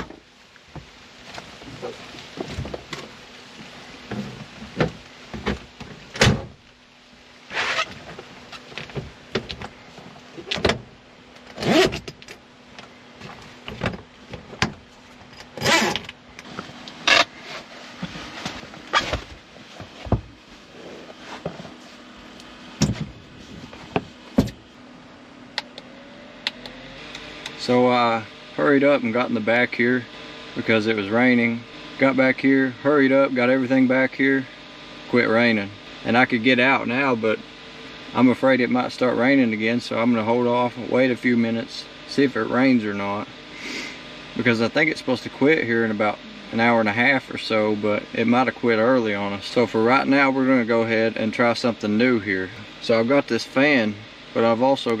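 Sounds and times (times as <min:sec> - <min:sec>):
scrapes or zips: 0:07.5 - 0:08.0
camping gear knocking and thumping: 0:22.8 - 0:23.2.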